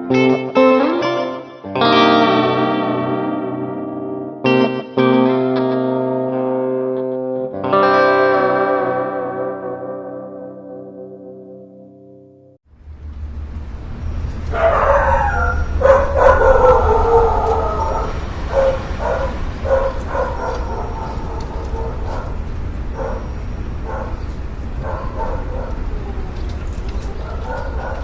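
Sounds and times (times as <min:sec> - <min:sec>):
low drone: 0:12.7 - 0:28.0
dog barking and yelping: 0:14.5 - 0:28.0
dog howling: 0:14.5 - 0:28.0.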